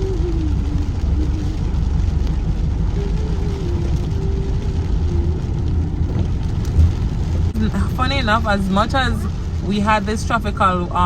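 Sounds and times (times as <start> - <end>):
faint wavering hum: 0.0 - 8.0
car engine and road noise: 0.0 - 11.0.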